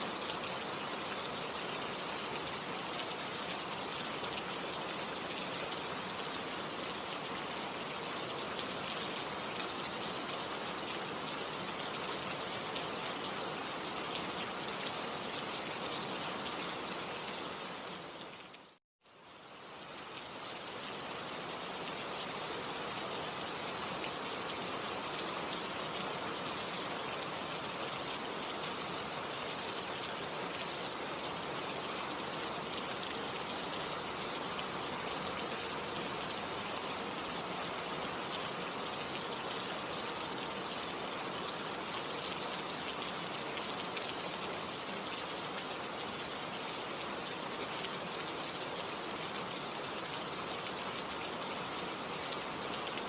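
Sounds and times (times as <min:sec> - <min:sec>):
steady rainfall hiss: 0:00.0 - 0:53.0.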